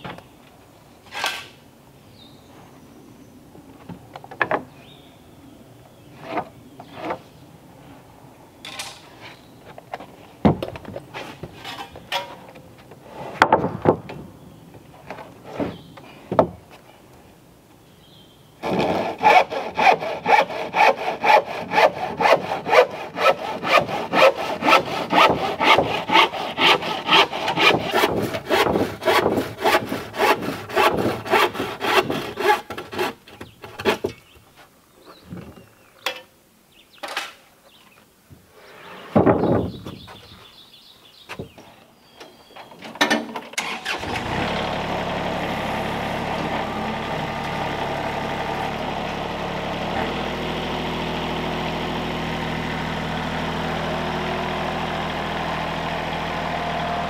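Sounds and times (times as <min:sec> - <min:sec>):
knocks of wood and tools: 0:03.8 - 0:04.7, 0:09.7 - 0:14.3, 0:15.0 - 0:16.9
hand saw cutting wood: 0:18.6 - 0:34.2.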